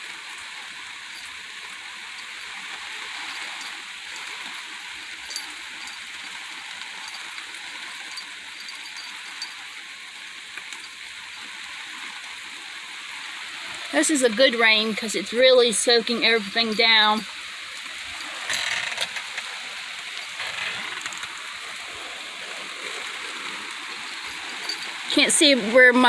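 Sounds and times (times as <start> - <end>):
steady rain falling: 0.0 - 26.0
rain drop ticks: 1.0 - 11.5.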